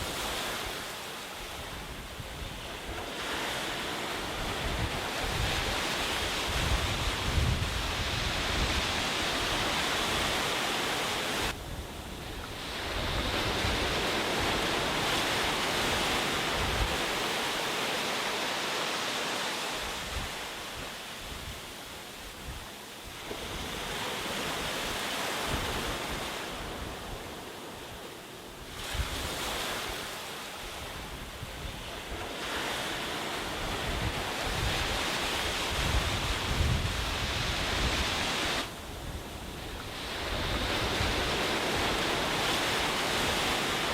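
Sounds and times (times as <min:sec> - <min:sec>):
waves breaking on beach: 0:00.0 - 0:43.9
wind buffeting microphone: 0:01.5 - 0:10.7, 0:33.4 - 0:43.9.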